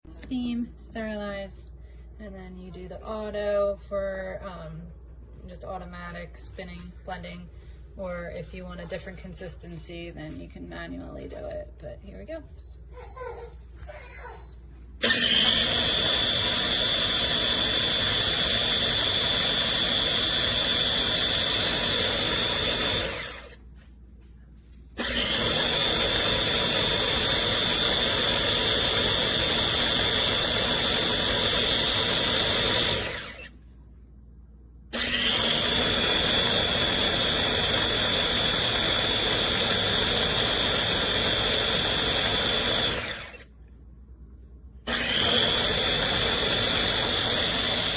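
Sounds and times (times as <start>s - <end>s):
blender motor whining: 14.3s - 23.7s, 25.0s - 33.6s, 34.9s - 43.6s, 44.9s - 47.9s.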